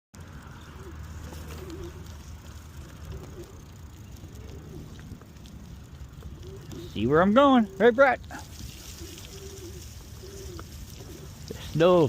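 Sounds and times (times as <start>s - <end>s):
wind and riding rumble: 0.2s - 12.0s
pigeon cooing: 0.4s - 12.0s.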